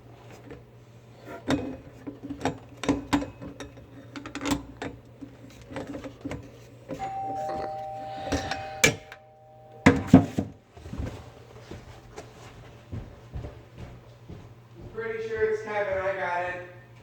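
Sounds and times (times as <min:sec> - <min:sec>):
two-note ringing tone: 0:07.0 - 0:10.6.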